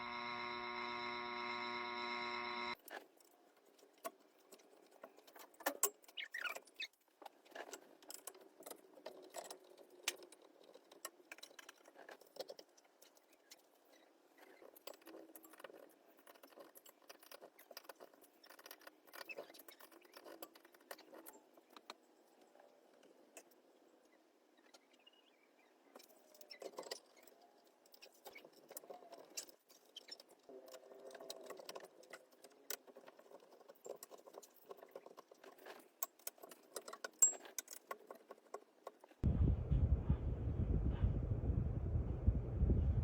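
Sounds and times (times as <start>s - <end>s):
steady tone: 39.2s - 43.0s.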